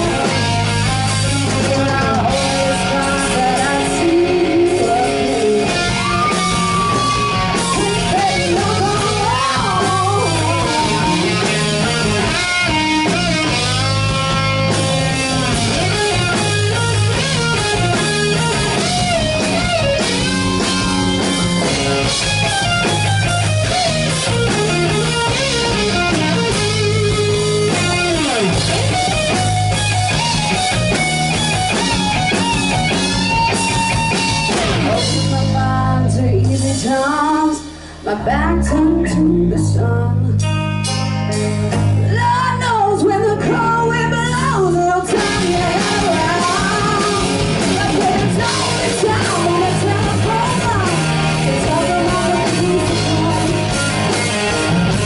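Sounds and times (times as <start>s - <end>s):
bending guitar lead: 0.0s - 55.0s
rock band instrumental: 0.0s - 55.0s.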